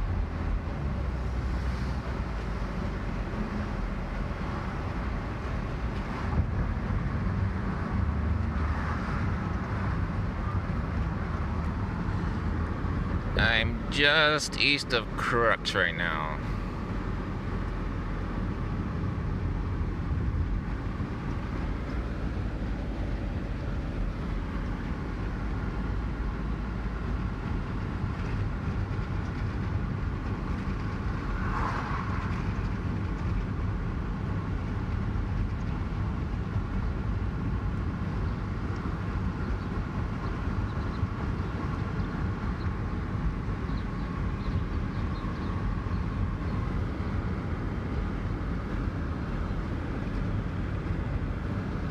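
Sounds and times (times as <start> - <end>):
car road and engine noise: 0.0 - 51.9.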